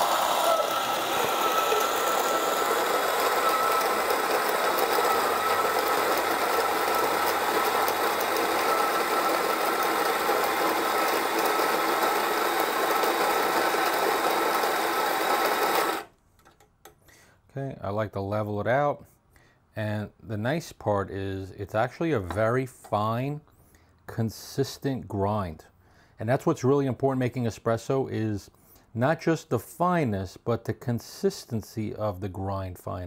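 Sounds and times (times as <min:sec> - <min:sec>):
coffee grinder whirring: 0:00.0 - 0:16.1.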